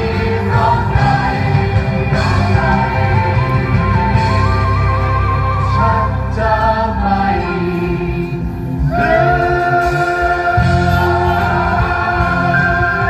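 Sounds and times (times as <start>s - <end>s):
group of voices singing chords: 0.0s - 13.0s.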